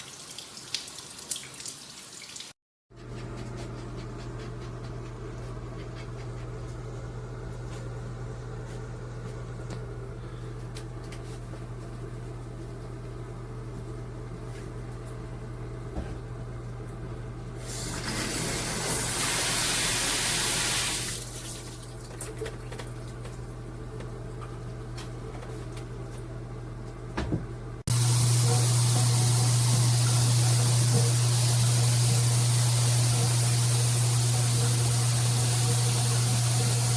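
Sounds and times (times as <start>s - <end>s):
shower water running: 0.0s - 2.6s, 17.6s - 23.6s, 27.9s - 36.9s.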